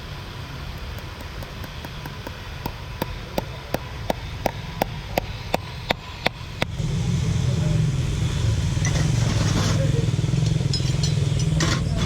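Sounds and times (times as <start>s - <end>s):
rhythmic hammer taps: 0.7s - 6.8s.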